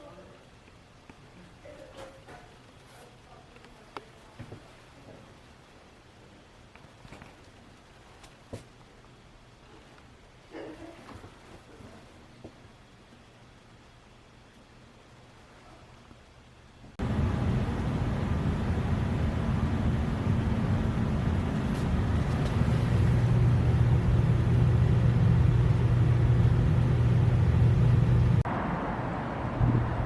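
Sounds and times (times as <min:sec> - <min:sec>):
car engine and road noise: 0:17.0 - 0:30.0.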